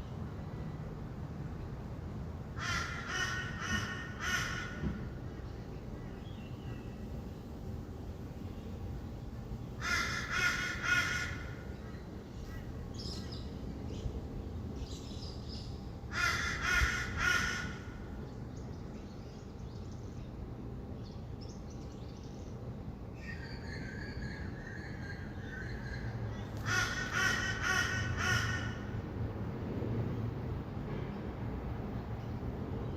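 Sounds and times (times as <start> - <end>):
distant traffic hum: 0.0 - 32.9
harsh bird squawks: 2.6 - 4.9, 9.8 - 11.7, 16.1 - 18.0, 23.2 - 28.9.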